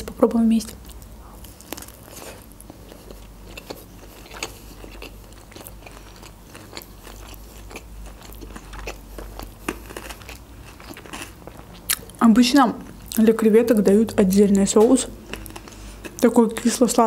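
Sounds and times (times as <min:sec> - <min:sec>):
person chewing fried food: 0:00.7 - 0:12.2, 0:15.2 - 0:16.3
crisp crunch: 0:00.8 - 0:12.2.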